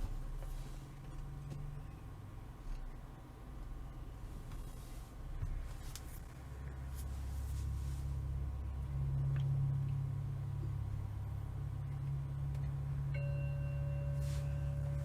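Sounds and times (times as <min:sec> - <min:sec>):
steady low hum: 0:00.0 - 0:15.0
singing bowl chime: 0:13.0 - 0:15.0.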